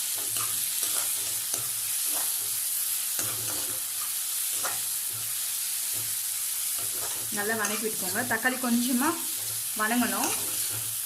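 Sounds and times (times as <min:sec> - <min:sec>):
food sizzling in oil: 0:00.0 - 0:11.0
utensil scraping pan: 0:06.8 - 0:08.1.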